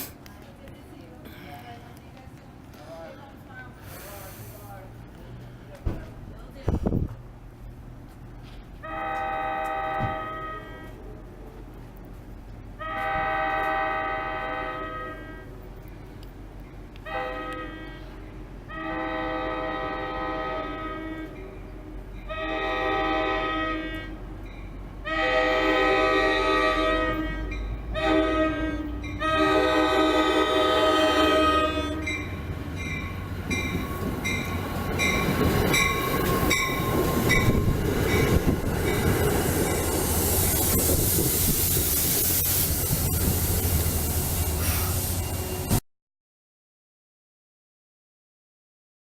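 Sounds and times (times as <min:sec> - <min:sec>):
train rumble: 0:00.0 - 0:45.8
locomotive air horn blasts: 0:08.8 - 0:11.0, 0:12.8 - 0:15.5, 0:17.0 - 0:21.4, 0:22.3 - 0:24.2, 0:25.0 - 0:32.3.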